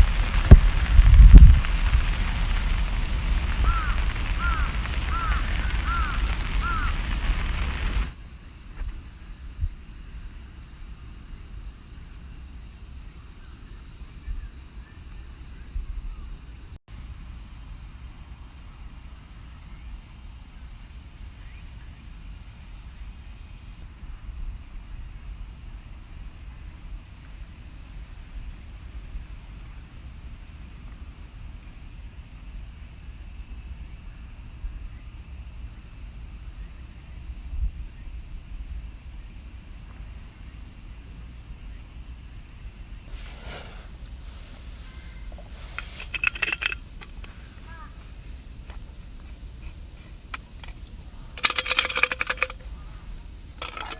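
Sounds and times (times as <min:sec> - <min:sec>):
rain falling: 0:00.0 - 0:08.1.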